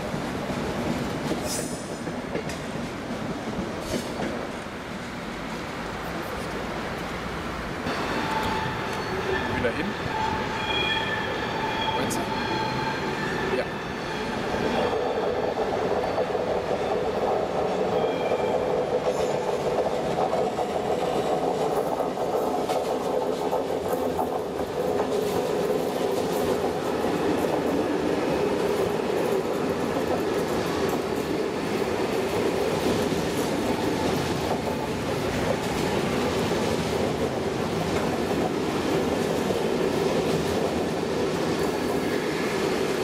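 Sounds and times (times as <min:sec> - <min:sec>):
train wheels rumbling on rail: 0:00.0 - 0:43.0
wheels clacking over rail joints: 0:15.5 - 0:42.5.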